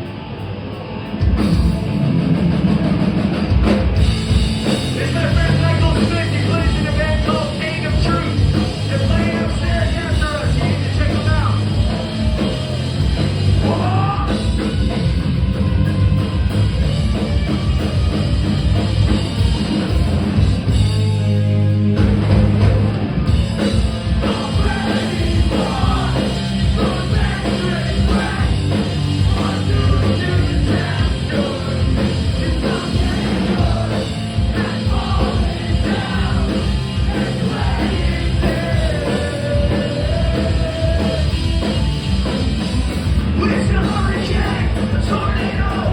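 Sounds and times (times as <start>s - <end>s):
punk rock band playing: 0.0s - 45.9s
person singing: 24.2s - 41.4s.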